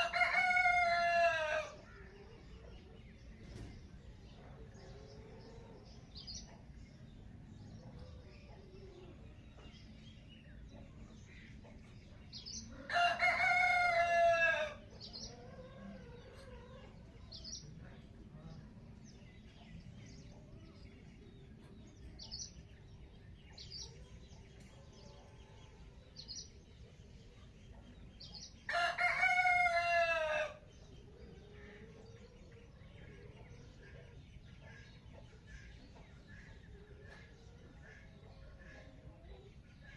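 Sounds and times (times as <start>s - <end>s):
rooster crowing: 0.0s - 1.8s, 12.9s - 14.8s, 28.7s - 30.6s
small birds chirping: 0.0s - 39.9s.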